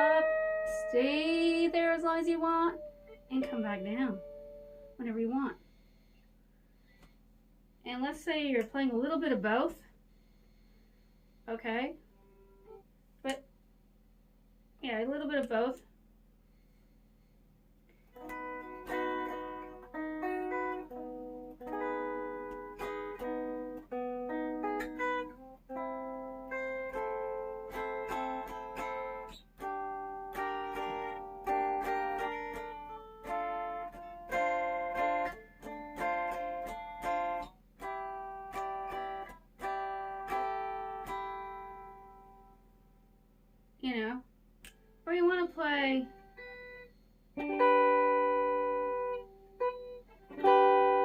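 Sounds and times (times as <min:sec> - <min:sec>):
electric ukulele notes ringing: 0:00.0 - 0:05.3, 0:18.2 - 0:42.5, 0:46.2 - 0:51.0.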